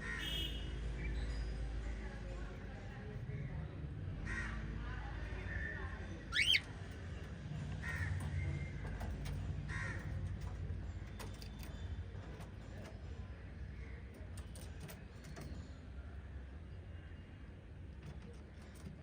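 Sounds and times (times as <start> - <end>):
cockatiel squawks: 6.3 - 6.6.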